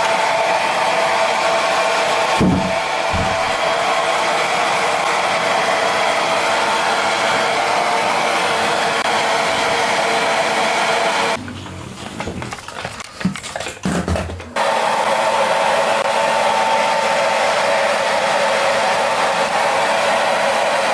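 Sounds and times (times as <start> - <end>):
hair dryer blowing: 0.0 - 11.4, 14.6 - 20.9
low thumps: 2.4 - 3.6.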